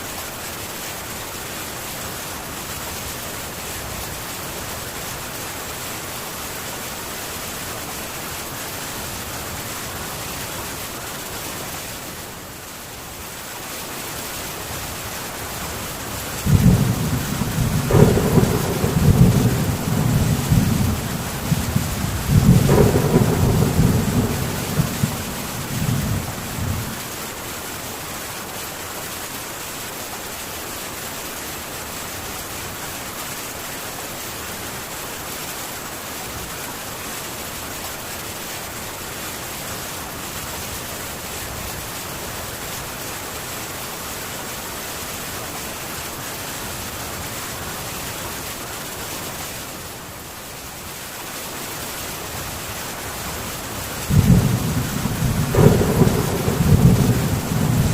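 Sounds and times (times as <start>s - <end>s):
heavy rain on a tin roof: 0.0s - 57.9s
thunder rumbling: 16.4s - 27.1s, 54.1s - 57.9s.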